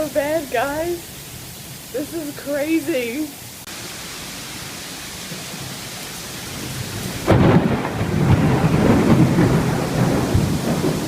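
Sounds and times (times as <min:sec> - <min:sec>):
heavy rain falling: 0:00.0 - 0:11.0
thunder crack and rumble: 0:06.5 - 0:11.0.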